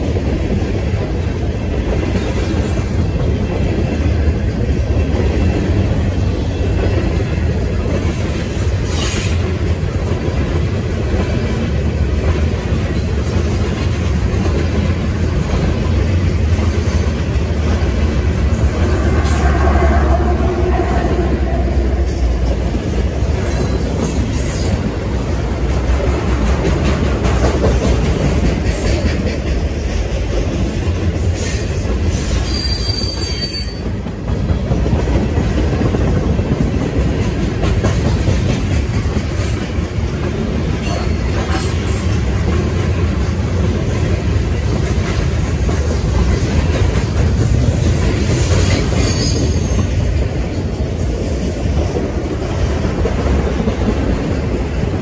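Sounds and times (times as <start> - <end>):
freight train wheels rumbling: 0.0 - 55.0
high wheel squeal: 32.4 - 33.9, 48.9 - 49.9.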